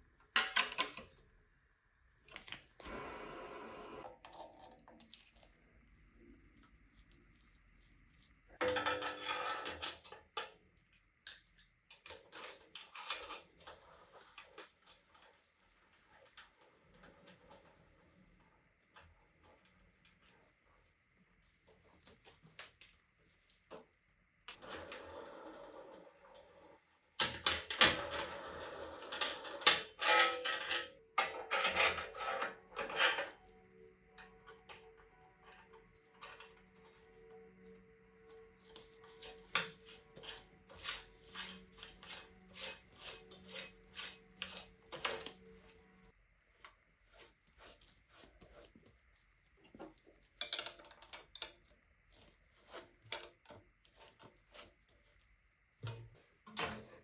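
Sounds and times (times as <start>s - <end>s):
hand tools scraping metal: 29.1s - 33.4s, 38.3s - 46.0s.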